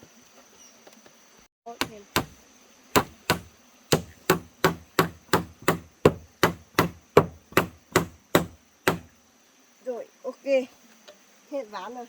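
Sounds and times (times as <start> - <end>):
hammer striking wood: 1.8 - 2.4, 3.0 - 9.1.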